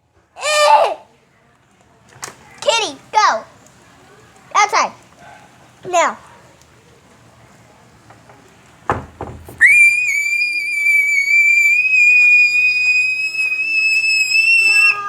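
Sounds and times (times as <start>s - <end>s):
high-pitched whistling tone: 9.6s - 15.0s.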